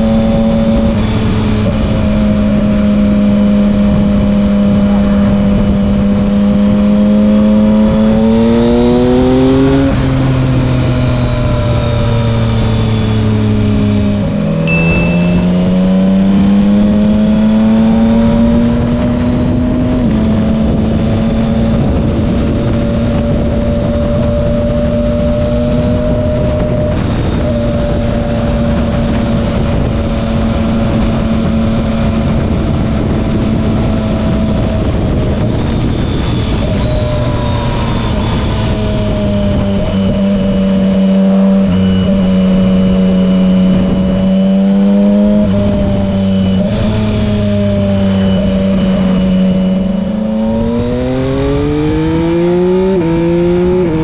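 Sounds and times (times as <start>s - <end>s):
motorcycle engine cruising: 0.0s - 54.0s
wind rush: 0.0s - 54.0s.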